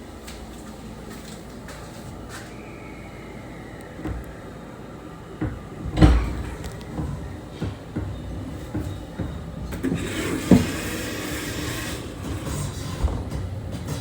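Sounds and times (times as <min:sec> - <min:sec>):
train door thump: 0:05.4 - 0:11.3, 0:12.7 - 0:14.0.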